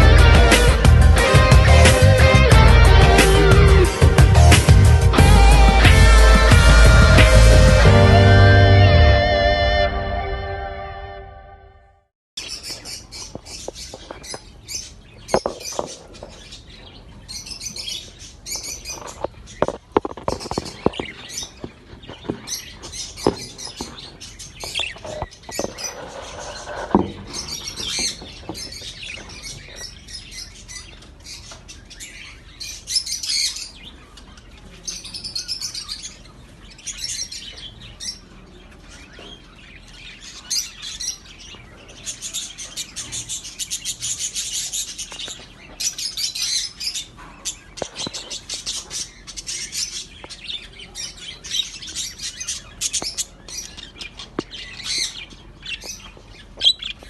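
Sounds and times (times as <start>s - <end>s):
budgerigars chirping: 12.4s - 57.0s.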